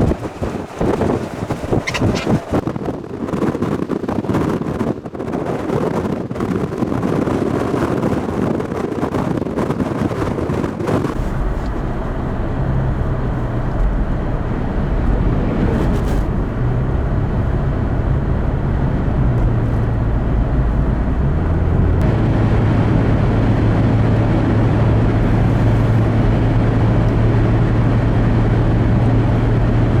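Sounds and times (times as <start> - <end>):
gusty wind on microphone: 0.0 - 30.0
vehicle driving heard from cabin: 10.9 - 30.0.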